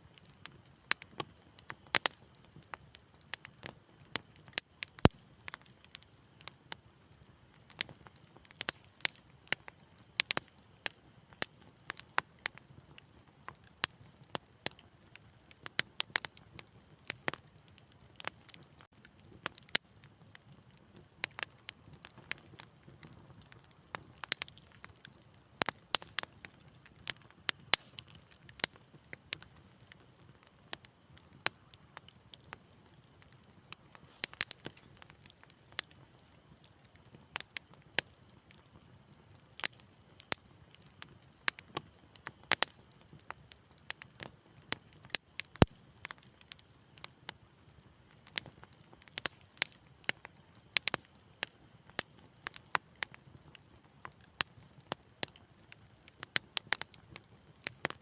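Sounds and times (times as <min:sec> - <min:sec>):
low rumble of flames: 0:00.0 - 0:58.0
wood fire crackling: 0:00.0 - 0:58.0.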